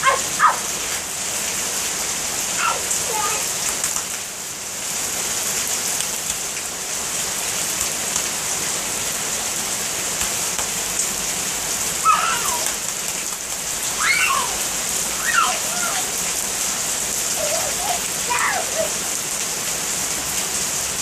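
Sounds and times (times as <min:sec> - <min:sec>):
heavy rain on pavement: 0:00.0 - 0:21.0
short high-pitched voice: 0:12.0 - 0:12.6, 0:15.2 - 0:16.2, 0:17.4 - 0:19.0.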